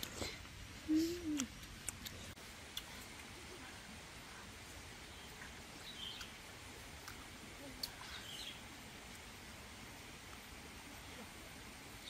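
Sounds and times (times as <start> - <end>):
faint bird chirps: 5.0 - 6.4, 7.6 - 8.7.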